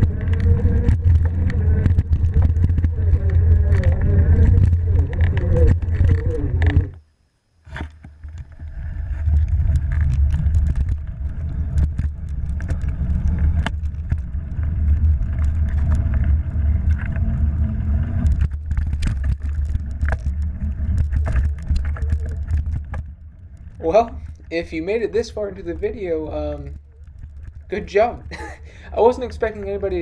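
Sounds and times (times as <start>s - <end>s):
road noise: 0.0s - 7.0s
wind buffeting microphone: 0.0s - 7.0s, 8.2s - 30.0s.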